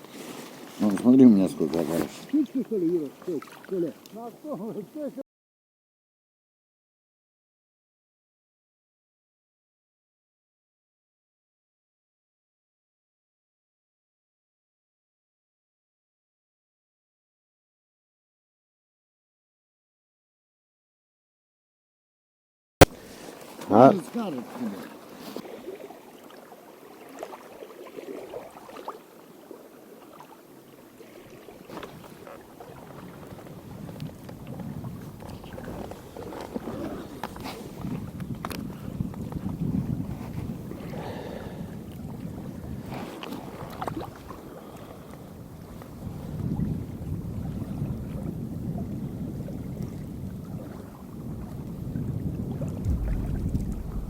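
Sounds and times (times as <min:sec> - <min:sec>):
water lapping: 0:00.0 - 0:05.2, 0:22.9 - 0:54.0
wind buffeting microphone: 0:31.8 - 0:54.0.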